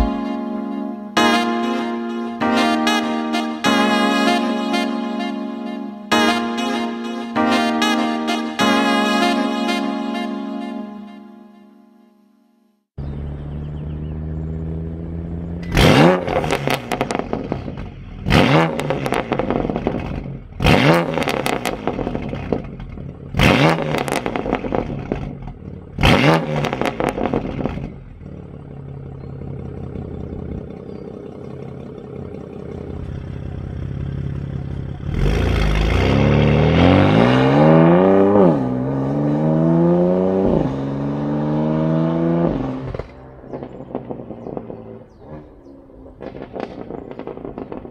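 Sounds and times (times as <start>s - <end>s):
car engine idling: 13.0s - 23.4s, 24.1s - 26.1s, 26.8s - 36.8s
car accelerating with upshifts: 13.0s - 47.9s
car engine revving with crackle: 13.0s - 47.9s.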